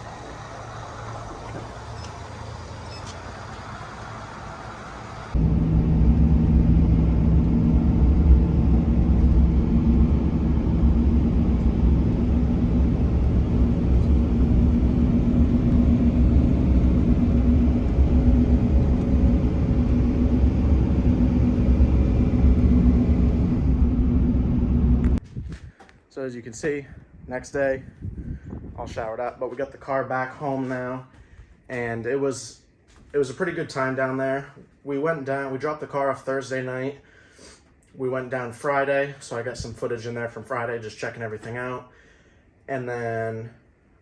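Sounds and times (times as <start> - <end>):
vehicle engine running: 0.0 - 25.2.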